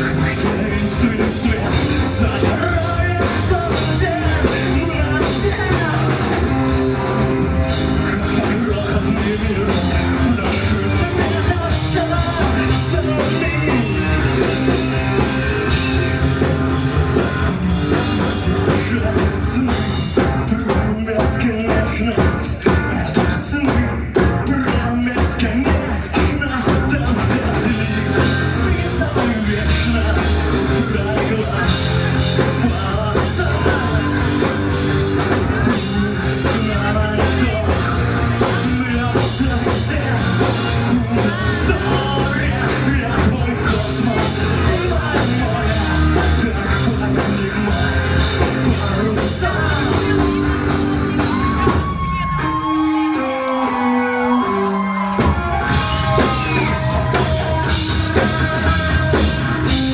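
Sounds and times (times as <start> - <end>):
drums: 0.0 - 59.9
live rock band playing: 0.0 - 59.9.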